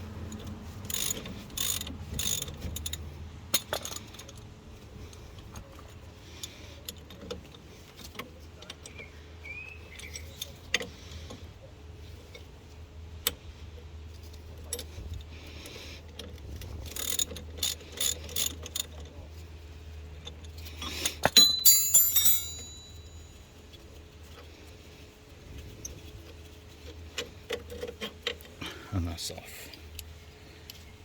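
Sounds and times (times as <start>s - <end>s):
hand tools clicking on metal: 21.2s - 23.3s
metal clattering and ringing: 21.3s - 23.6s.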